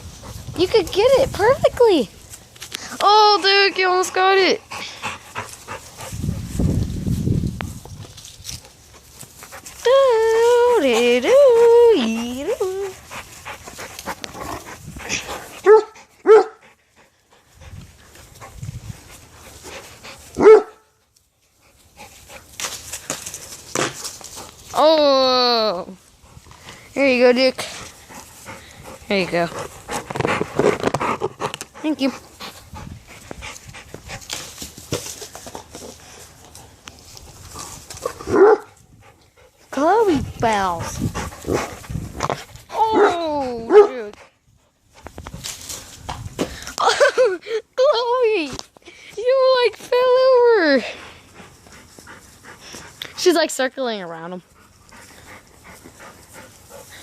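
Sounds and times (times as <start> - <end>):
dog panting: 3.3 - 6.6, 10.8 - 20.6, 26.2 - 34.4, 38.9 - 42.7, 50.7 - 57.0
dog barking: 15.6 - 16.6, 20.4 - 20.8, 38.3 - 38.7, 43.7 - 44.0.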